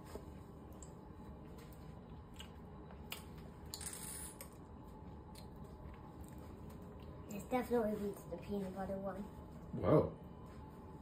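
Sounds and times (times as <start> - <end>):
faint chewing: 0.6 - 7.2.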